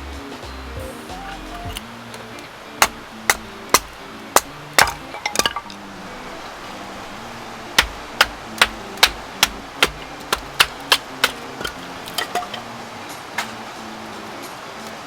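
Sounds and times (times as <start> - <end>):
soft background music: 0.0 - 15.0
hammer strikes: 0.8 - 1.8, 2.8 - 5.7, 7.7 - 12.7.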